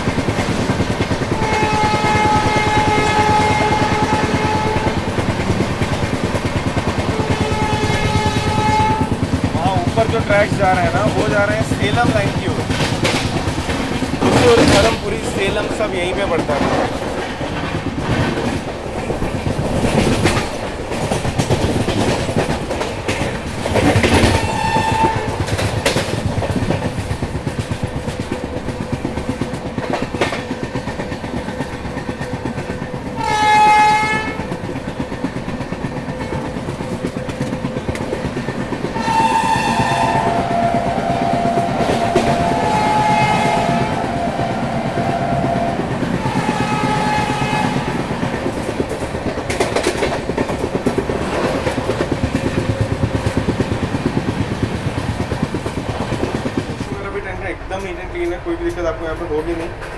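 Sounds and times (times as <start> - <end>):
train wheels clattering over rails: 0.0 - 59.9
locomotive horn: 1.3 - 5.1, 7.1 - 9.2, 24.1 - 25.5, 33.2 - 34.6, 39.0 - 48.0.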